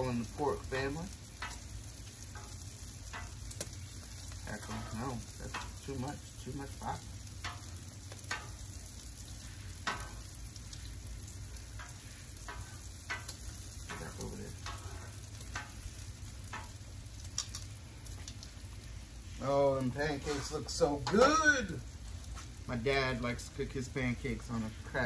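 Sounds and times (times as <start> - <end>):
food sizzling on a griddle: 0.0 - 25.0
metal tongs clicking on griddle: 1.3 - 6.2, 7.4 - 9.0, 9.8 - 10.9, 11.6 - 17.7.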